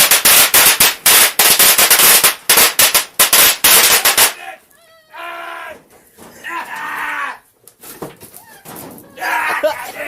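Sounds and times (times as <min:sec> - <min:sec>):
firecrackers banging: 0:00.0 - 0:04.5.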